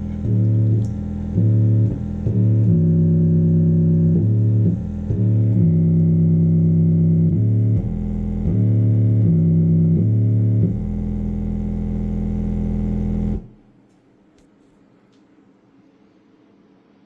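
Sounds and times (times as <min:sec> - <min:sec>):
low synth bass notes: 0:00.0 - 0:13.6.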